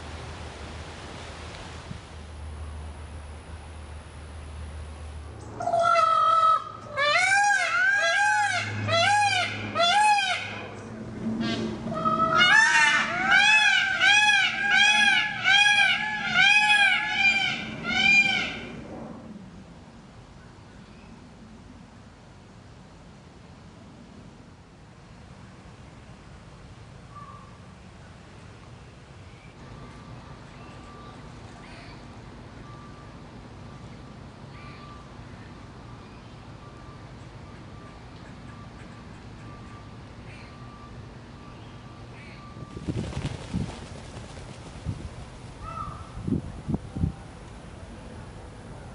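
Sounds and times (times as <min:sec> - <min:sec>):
low outdoor rumble: 0:00.0 - 0:48.9
peacock calling: 0:05.6 - 0:10.8, 0:11.4 - 0:18.8, 0:45.6 - 0:46.2.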